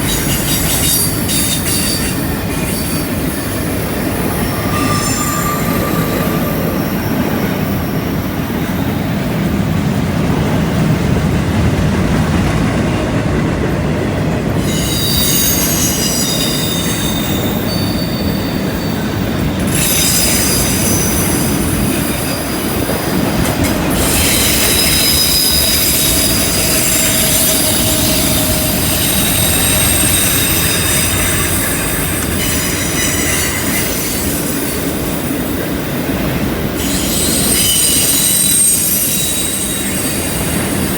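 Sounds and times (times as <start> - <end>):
wheel flange squeal: 0.0 - 9.0, 14.6 - 23.0, 23.9 - 34.9, 36.8 - 40.9
train wheels rumbling: 0.0 - 40.9.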